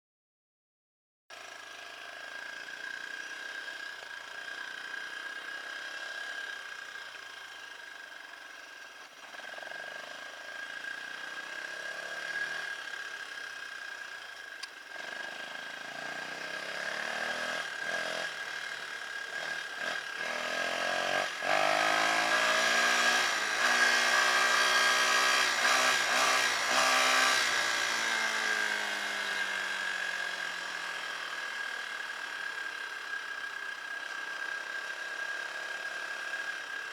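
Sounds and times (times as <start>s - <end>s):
dirt bike engine revving: 10.6s - 13.2s, 14.9s - 31.5s.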